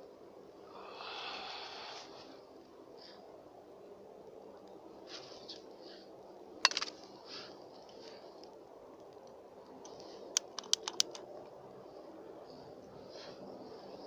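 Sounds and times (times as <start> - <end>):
low background hiss: 0.0 - 14.0
sharp clicks: 9.2 - 11.3.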